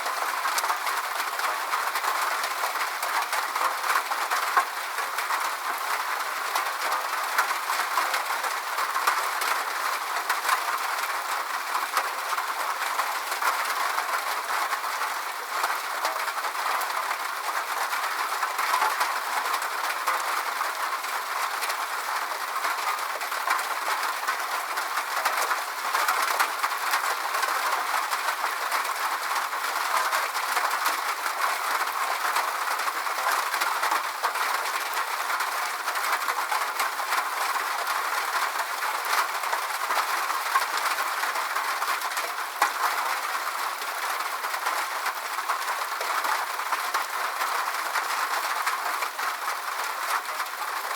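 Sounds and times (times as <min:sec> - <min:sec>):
steady rainfall: 0:00.0 - 0:50.9.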